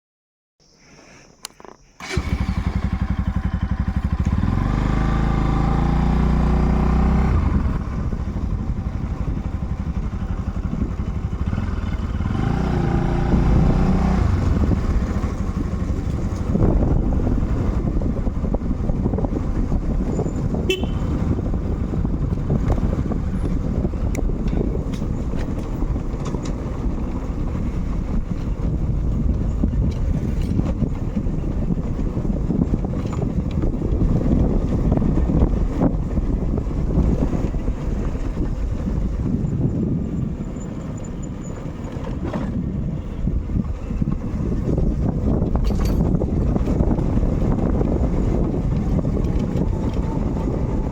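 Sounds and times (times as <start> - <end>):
motorcycle engine and wind rumble: 1.3 - 50.9
motorcycle horn toot: 20.5 - 21.5.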